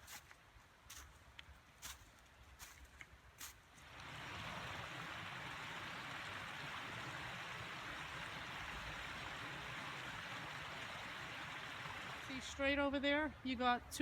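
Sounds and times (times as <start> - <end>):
creek water rushing over rocks: 3.7 - 12.6.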